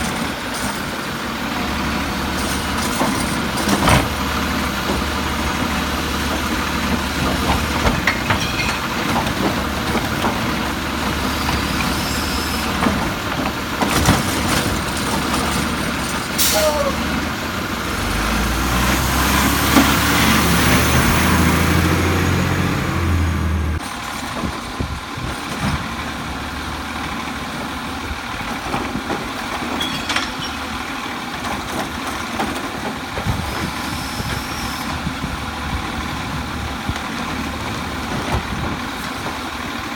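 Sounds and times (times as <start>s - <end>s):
garbage truck engine running: 0.0s - 39.9s
metal clanks and knocks: 7.3s - 10.6s, 28.8s - 30.8s.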